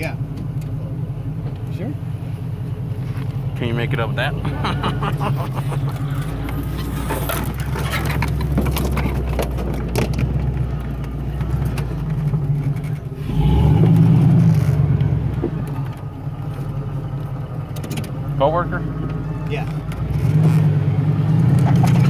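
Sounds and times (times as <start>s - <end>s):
off-road vehicle engine: 0.0s - 22.0s
clicks knocks and scrapes: 5.9s - 13.1s, 21.4s - 22.0s.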